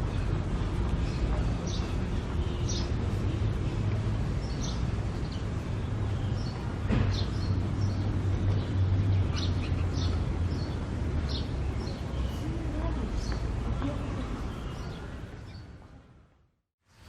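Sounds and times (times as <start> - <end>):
small birds chirping: 0.0 - 15.8.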